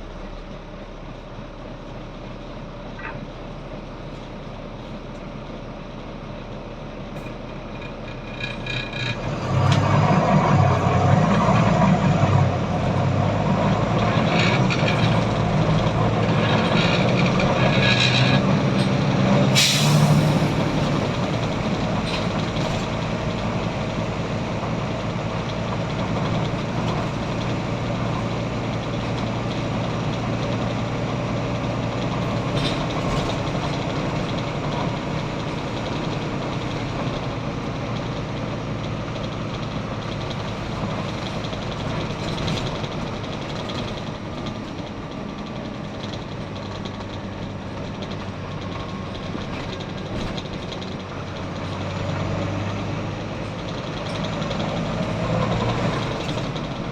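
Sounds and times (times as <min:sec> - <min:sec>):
bus diesel engine humming: 0:00.0 - 0:56.9.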